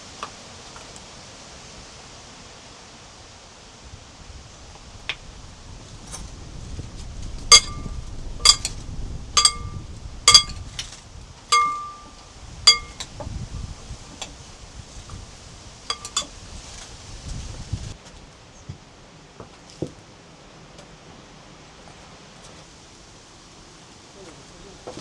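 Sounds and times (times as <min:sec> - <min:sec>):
dishes clinking: 0:07.5 - 0:08.8, 0:09.4 - 0:10.7, 0:11.5 - 0:13.0, 0:15.9 - 0:16.3.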